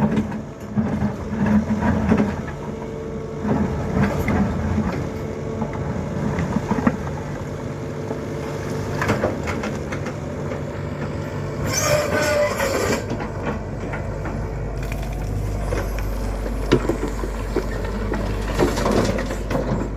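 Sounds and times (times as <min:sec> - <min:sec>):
excavator diesel engine running: 0:00.0 - 0:19.9
soil and stone clattering into truck: 0:11.7 - 0:19.9.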